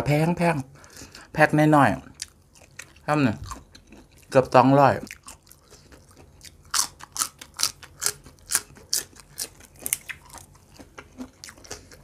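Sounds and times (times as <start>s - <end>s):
crunchy chewing of stalk: 2.0s - 12.0s.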